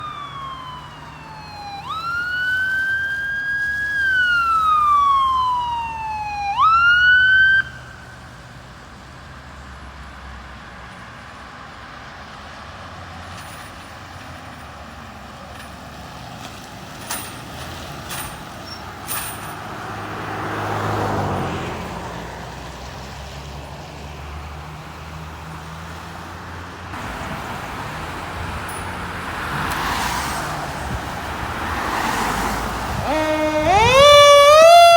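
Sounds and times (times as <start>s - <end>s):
emergency siren wailing: 0.0s - 8.4s, 20.2s - 22.4s, 27.0s - 34.9s
vehicle engines rumbling: 0.0s - 34.9s
vehicle passing: 19.0s - 34.9s.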